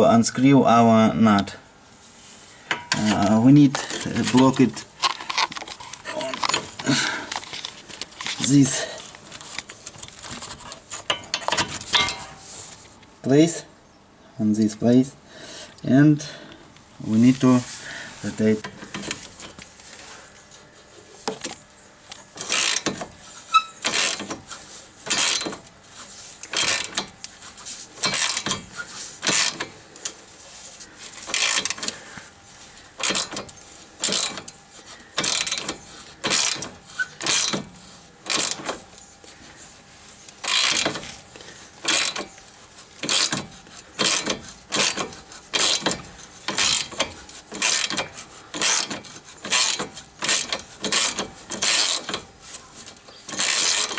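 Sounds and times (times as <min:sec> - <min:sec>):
ratchet wrench clicking: 0:22.4 - 0:24.4, 0:25.0 - 0:25.6, 0:26.4 - 0:27.1, 0:31.3 - 0:31.9, 0:35.2 - 0:37.6, 0:41.8 - 0:42.3, 0:43.0 - 0:52.2.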